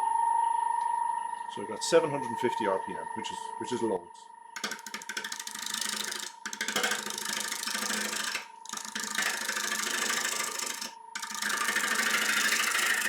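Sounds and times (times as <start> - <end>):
gouge cutting wood on lathe: 4.6 - 13.0.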